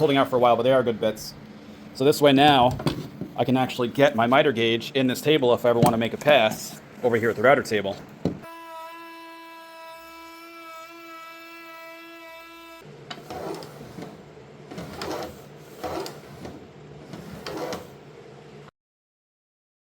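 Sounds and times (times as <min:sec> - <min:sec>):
wood router whining: 0:08.4 - 0:13.8.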